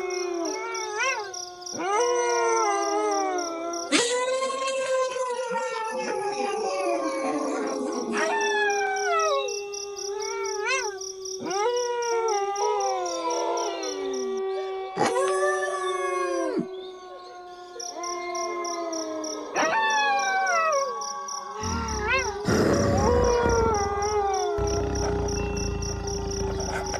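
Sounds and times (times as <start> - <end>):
wolves howling in chorus: 0.0 - 3.9, 5.3 - 26.9
high pulsing chirp: 21.6 - 26.9.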